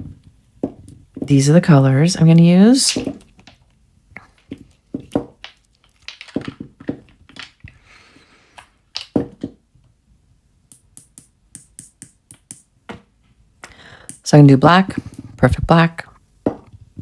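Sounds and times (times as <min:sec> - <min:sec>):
bottles clicking on table: 0:05.0 - 0:07.6.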